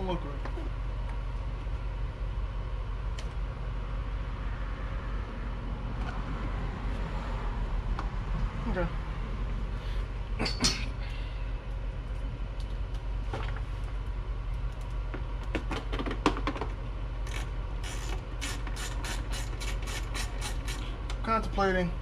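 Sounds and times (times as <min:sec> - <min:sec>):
low hum: 0:00.0 - 0:15.5.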